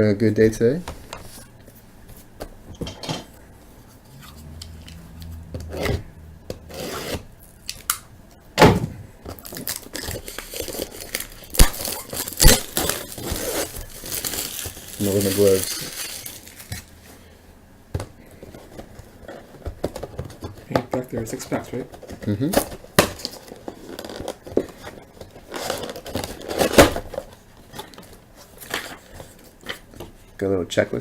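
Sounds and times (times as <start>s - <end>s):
cardboard box rubbing and tearing: 6.6s - 7.4s, 11.8s - 16.6s.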